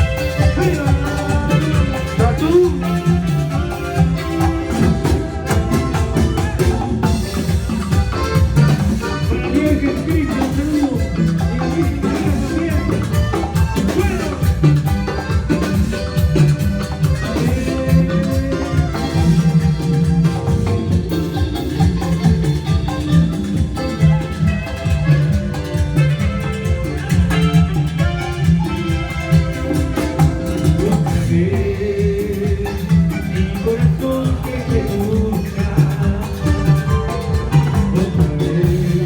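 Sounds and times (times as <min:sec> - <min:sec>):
latin dance band instrumental: 0:00.0 - 0:39.0.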